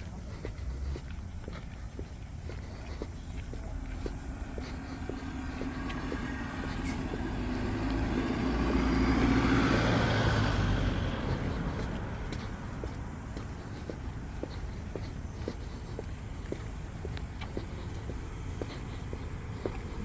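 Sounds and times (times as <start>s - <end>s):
vehicle driving past: 4.2s - 13.6s.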